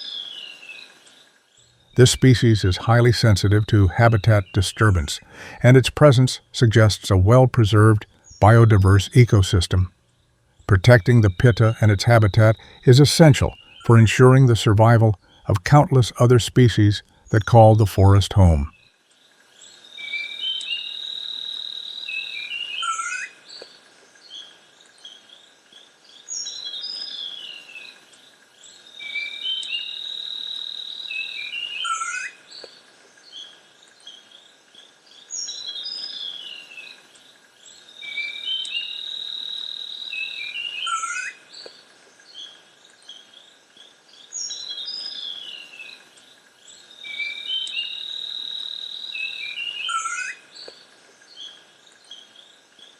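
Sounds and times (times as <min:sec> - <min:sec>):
bird chirps: 0:10.6 - 0:18.9, 0:38.0 - 0:41.7, 0:44.2 - 0:46.0, 0:46.7 - 0:52.4.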